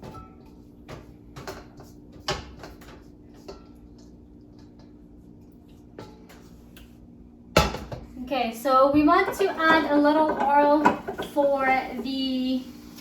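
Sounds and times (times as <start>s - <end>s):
cookware knocks and clinks: 7.6s - 8.1s.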